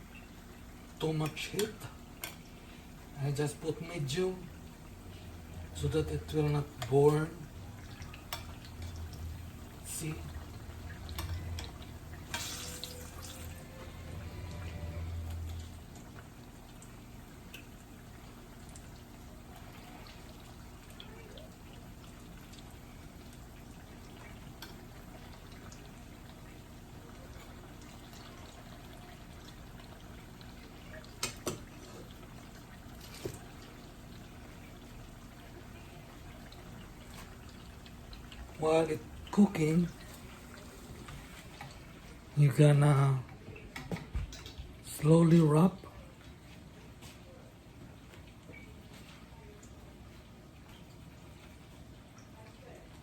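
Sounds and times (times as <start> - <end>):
food frying in oil: 0.0 - 53.0
low hum: 7.4 - 16.9.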